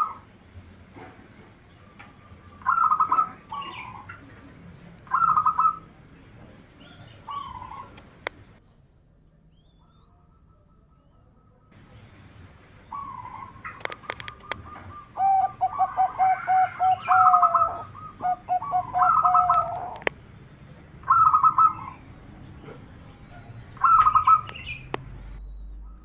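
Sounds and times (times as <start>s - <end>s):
dove cooing: 0.0s - 0.3s, 1.7s - 6.0s, 6.8s - 8.6s, 12.8s - 20.2s, 21.0s - 22.8s, 23.4s - 24.9s
trilled bird phrases: 0.0s - 0.5s, 1.6s - 8.6s, 9.4s - 26.0s
sharp clicks: 13.7s - 14.6s.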